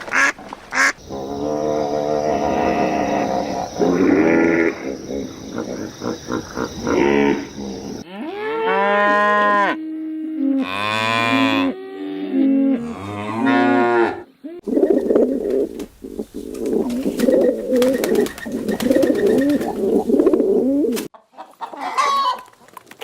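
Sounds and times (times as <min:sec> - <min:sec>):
cattle mooing: 0:06.9 - 0:14.2.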